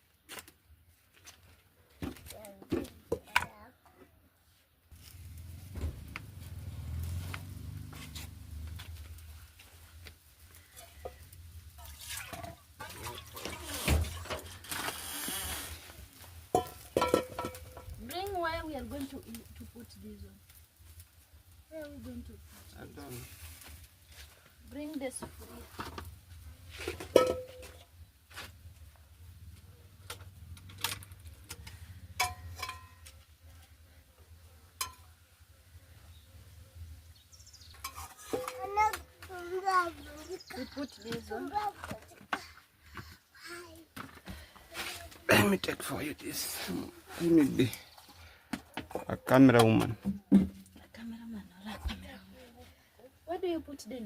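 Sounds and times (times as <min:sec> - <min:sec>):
dishes and utensils clinking: 0:16.5 - 0:17.9, 0:26.8 - 0:27.8, 0:32.2 - 0:33.0, 0:37.8 - 0:38.8.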